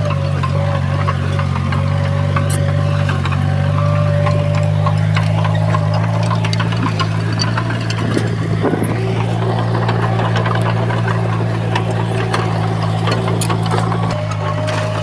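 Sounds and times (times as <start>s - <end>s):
heavy diesel engine running: 0.0s - 15.0s
sharp metallic clicks and clatters: 0.0s - 15.0s.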